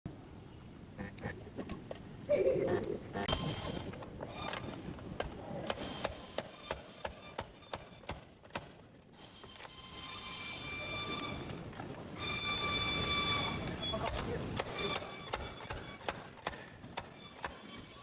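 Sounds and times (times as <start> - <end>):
sharp mechanical clicks: 14.1 - 17.6.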